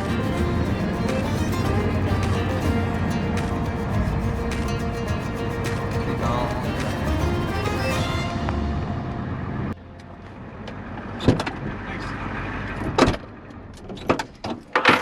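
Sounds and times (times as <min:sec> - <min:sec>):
background music: 0:00.0 - 0:10.3
vehicle engine rumbling: 0:00.0 - 0:14.1.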